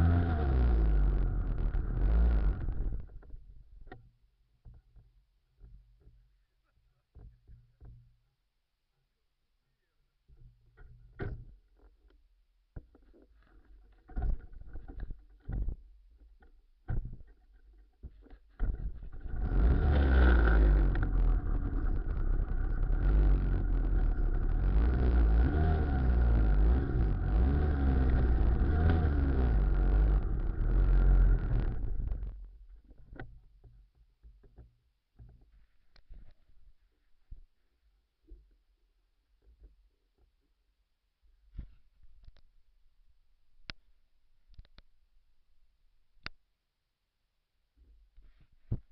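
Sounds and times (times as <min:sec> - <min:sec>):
motor tricycle engine running: 0:00.0 - 0:03.1, 0:19.0 - 0:32.4.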